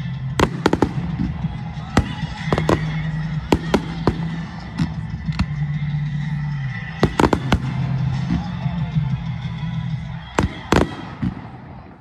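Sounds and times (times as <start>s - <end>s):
low background music: 0.0s - 12.0s
fireworks bangs: 0.4s - 5.4s, 7.0s - 8.6s, 10.3s - 12.0s.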